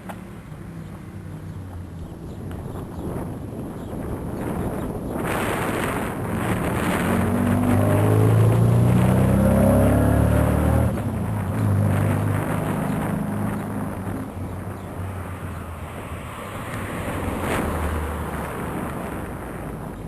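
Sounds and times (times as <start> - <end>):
wind noise on microphone: 0.4 - 20.0
vehicle engine accelerating: 5.4 - 19.8.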